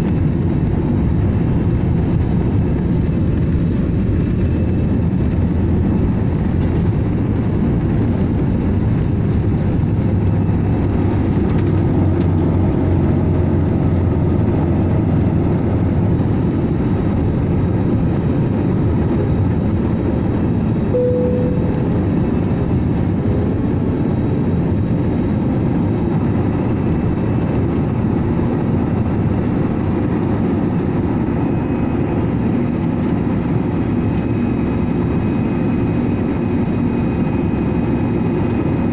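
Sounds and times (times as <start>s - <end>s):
aircraft engines rumbling: 0.0s - 38.9s
brief higher tone: 21.0s - 22.4s.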